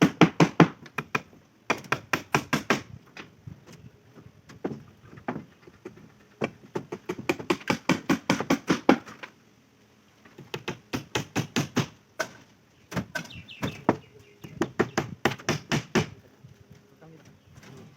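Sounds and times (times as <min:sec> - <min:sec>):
hammer striking nails into wood: 0:00.0 - 0:02.9, 0:06.9 - 0:09.2, 0:10.5 - 0:14.0, 0:14.6 - 0:16.2.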